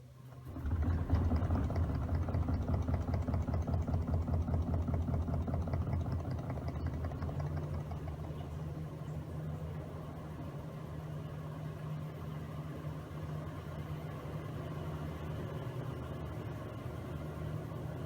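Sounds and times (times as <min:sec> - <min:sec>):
washing machine churning: 0:00.4 - 0:09.0.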